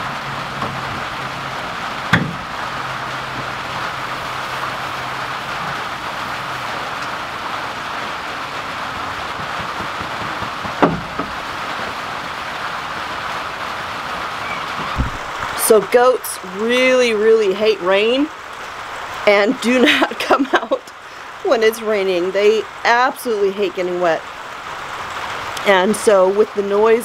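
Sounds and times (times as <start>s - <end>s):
rain on a metal roof: 0.0s - 27.0s
sharp knocks: 2.1s - 2.5s, 9.4s - 11.4s, 14.8s - 15.2s.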